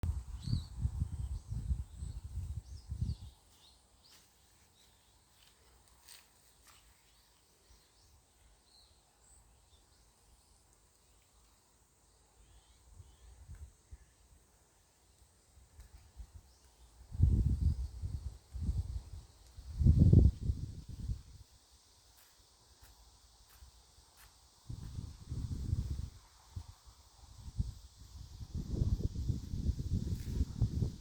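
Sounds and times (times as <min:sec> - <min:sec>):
wind gusting against microphone: 0:00.0 - 0:03.4, 0:17.1 - 0:21.4, 0:24.7 - 0:31.0
cicadas droning: 0:00.1 - 0:31.0
faint bird chirps: 0:00.3 - 0:05.5, 0:06.5 - 0:14.4.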